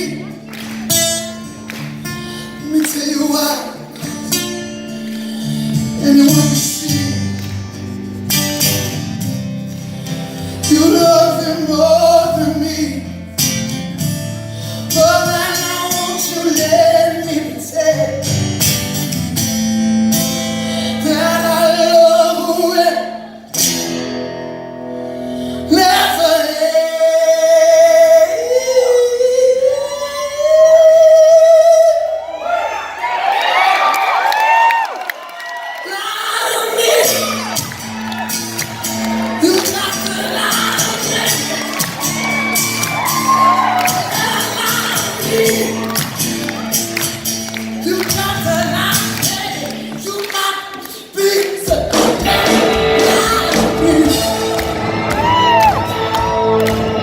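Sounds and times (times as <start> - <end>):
man singing: 0.0 - 0.5, 2.3 - 4.1, 5.1 - 8.0, 10.4 - 13.4, 14.6 - 18.5, 20.7 - 23.4, 25.6 - 32.2, 39.3 - 41.8, 43.0 - 46.2, 47.7 - 56.5
strummed acoustic guitar: 0.0 - 29.7, 37.0 - 50.5, 51.7 - 57.0.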